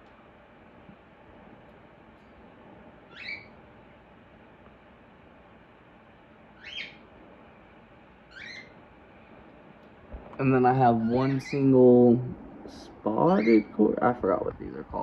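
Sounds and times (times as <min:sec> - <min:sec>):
faint steady hiss: 0:00.0 - 0:15.0
bird chirps: 0:03.1 - 0:03.5, 0:06.6 - 0:07.0, 0:08.3 - 0:08.8.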